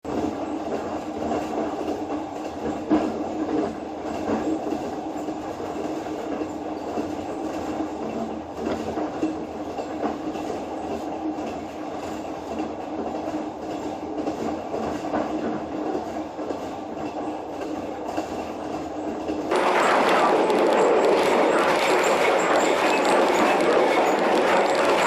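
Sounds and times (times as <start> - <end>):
train rumbling on track: 0.0 - 25.0.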